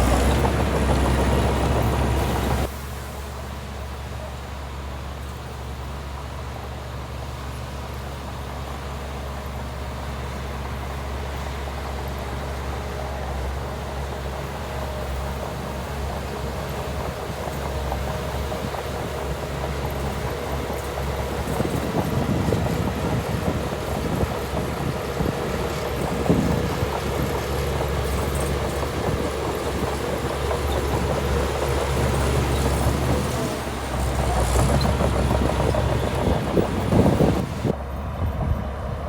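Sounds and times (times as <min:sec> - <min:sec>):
heavy machinery diesel engine: 0:00.0 - 0:39.0
rattling and clanking: 0:21.0 - 0:37.7.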